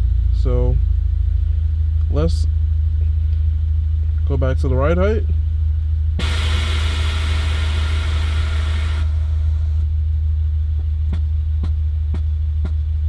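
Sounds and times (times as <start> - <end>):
car engine idling hum: 0.0 - 10.2
air suspension valves hissing: 6.2 - 9.8.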